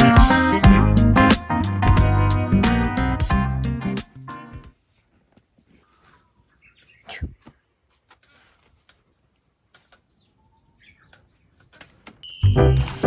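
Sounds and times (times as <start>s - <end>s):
bird chirps: 5.9s - 8.0s.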